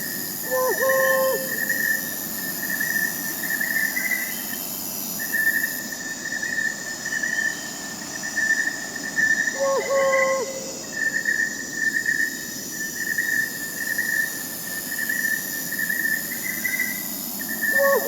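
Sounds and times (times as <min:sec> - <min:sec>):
crickets and night insects trilling: 0:00.0 - 0:18.0
owl hooting: 0:00.4 - 0:02.0, 0:09.5 - 0:10.8, 0:17.7 - 0:18.0.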